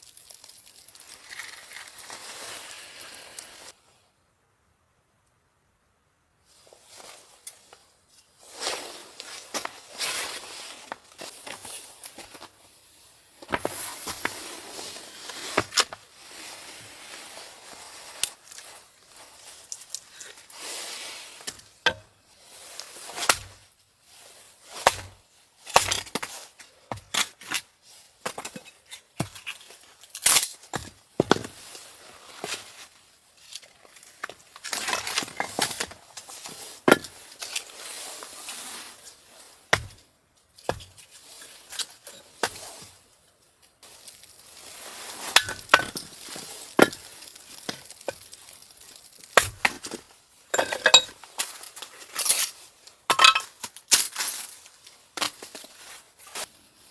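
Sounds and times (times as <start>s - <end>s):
quiet scraping or rustling: 0.3s - 4.0s, 6.4s - 24.9s, 40.8s - 52.8s.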